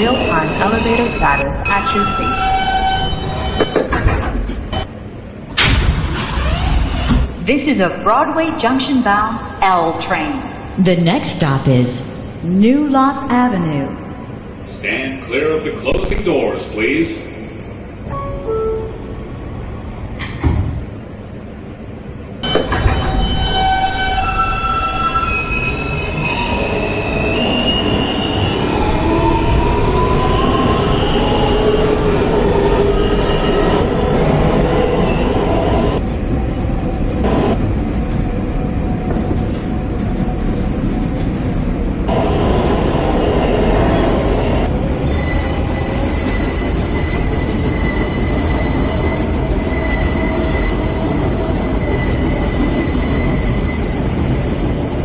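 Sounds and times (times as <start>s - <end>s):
train wheels rumbling on rail: 19.1s - 55.0s
high squealing tones: 43.4s - 55.0s
steady high tones: 45.0s - 55.0s.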